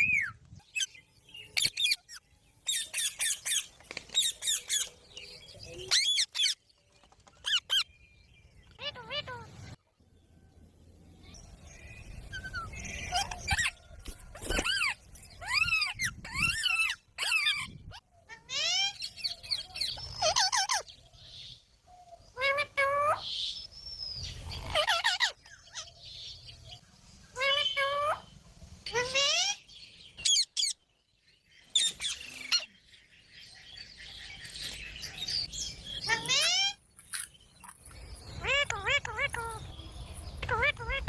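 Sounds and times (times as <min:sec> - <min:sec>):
parakeet calling: 0:08.6 - 0:09.7, 0:35.9 - 0:41.0
parrot calling: 0:36.0 - 0:36.8, 0:38.3 - 0:39.7, 0:40.4 - 0:41.0
parakeet chattering: 0:37.8 - 0:39.7, 0:40.4 - 0:41.0.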